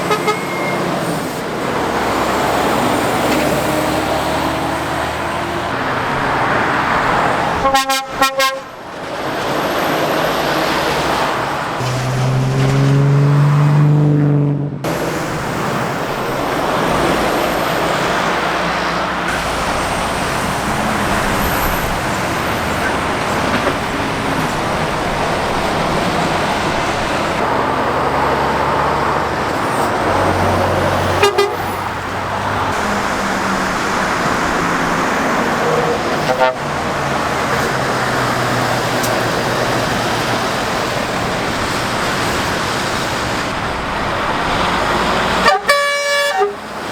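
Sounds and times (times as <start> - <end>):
pitched tone from vehicle: 0.0 - 0.9
road traffic passing: 0.0 - 46.9.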